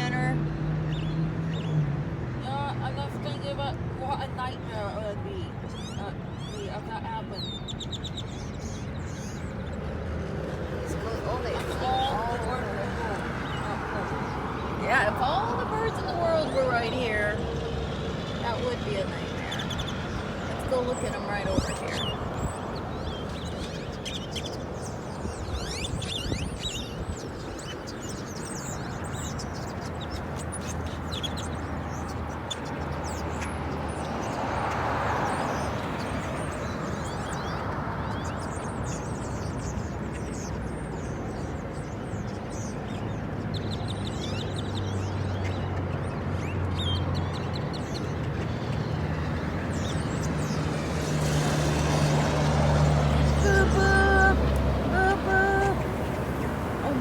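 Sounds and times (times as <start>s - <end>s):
flock of birds calling: 2.4s - 57.0s
low engine hum: 44.6s - 57.0s
car rumble: 47.0s - 57.0s.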